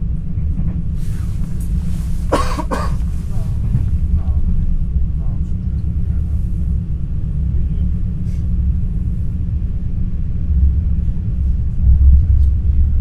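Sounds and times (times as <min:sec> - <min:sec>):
train cabin rumble: 0:01.0 - 0:04.4.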